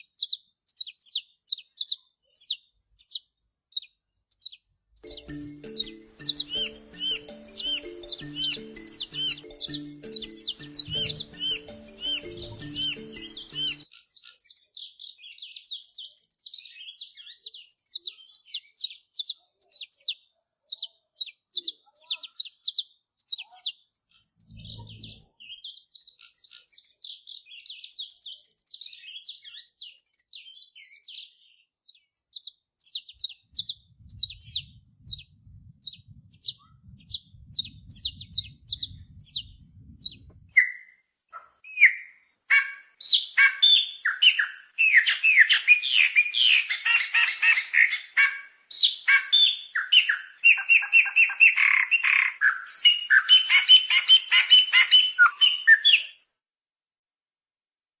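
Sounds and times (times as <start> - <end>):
songbird chirping and twittering: 0.0 - 56.2
lower bird calls: 3.8 - 14.3, 23.3 - 26.7, 32.9 - 56.2
low rumble: 24.4 - 25.3, 33.5 - 40.6
low thump: 39.4 - 40.6.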